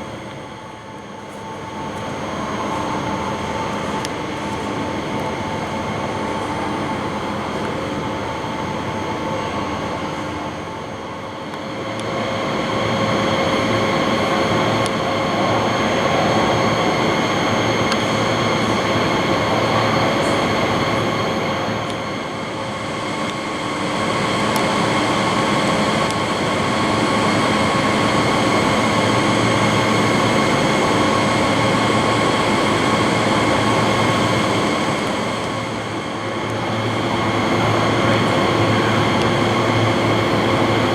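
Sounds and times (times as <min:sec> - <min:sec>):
train motor hum: 0:00.0 - 0:11.3, 0:11.9 - 0:40.9
electric train rumbling: 0:00.0 - 0:40.9.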